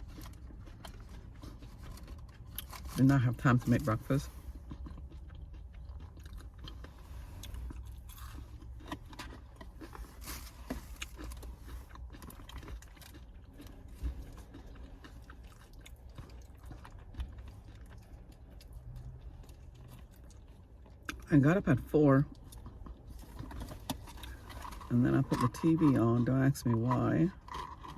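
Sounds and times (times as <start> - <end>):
person chewing food crunchily: 0.0 - 27.9.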